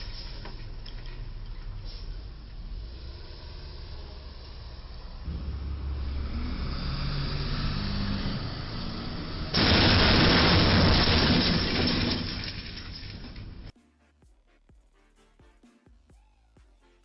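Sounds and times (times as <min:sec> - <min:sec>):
vehicle engine and road rumble: 0:00.0 - 0:13.7
loud crash: 0:09.5 - 0:13.4.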